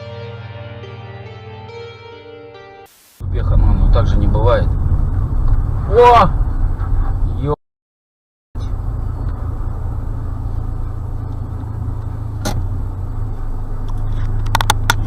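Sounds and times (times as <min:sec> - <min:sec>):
car road and engine rumble: 0:03.2 - 0:07.6, 0:08.6 - 0:15.0.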